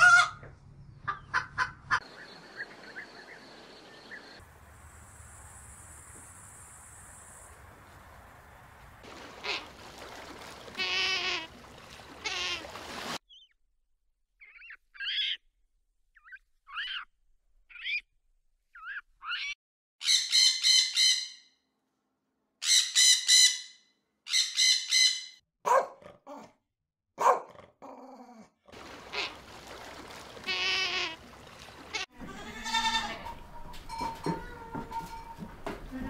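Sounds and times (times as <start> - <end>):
macaw squawking: 14.4 - 15.4, 16.2 - 17.1, 17.7 - 18.0, 18.8 - 21.4
goats bleating: 31.9 - 33.4.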